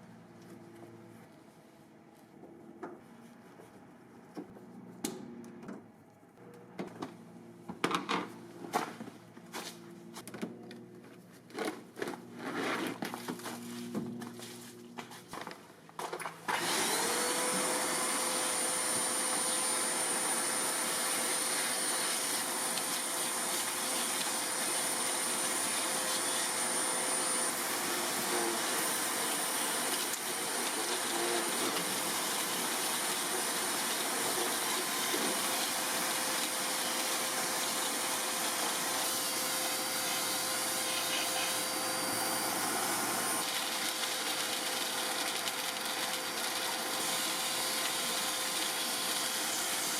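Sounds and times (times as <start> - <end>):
vacuum cleaner running: 16.4 - 49.9.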